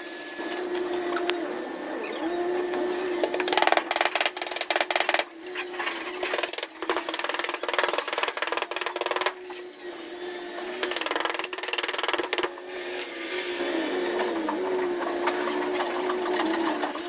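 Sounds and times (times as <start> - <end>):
small motorized tool rattling: 3.2 - 9.7, 10.8 - 13.1.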